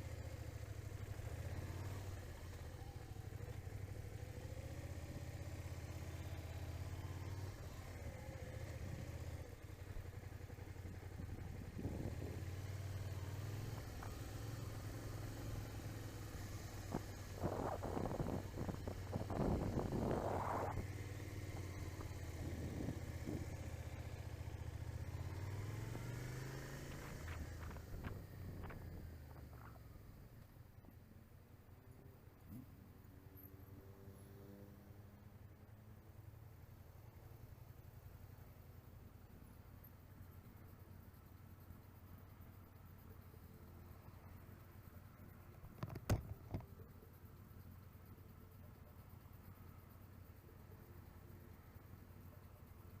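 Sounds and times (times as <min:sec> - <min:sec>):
motorcycle engine running: 0:00.0 - 0:31.4.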